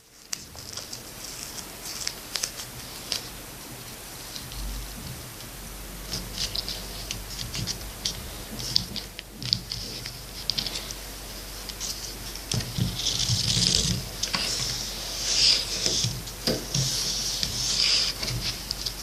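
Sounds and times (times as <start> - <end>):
plastic rubbing or scraping: 11.6 - 19.0.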